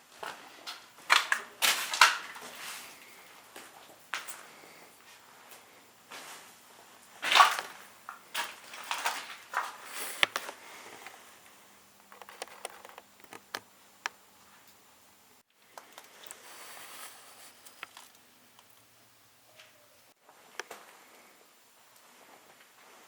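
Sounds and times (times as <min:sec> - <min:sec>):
footsteps scuffing on floor: 0:01.7 - 0:06.6.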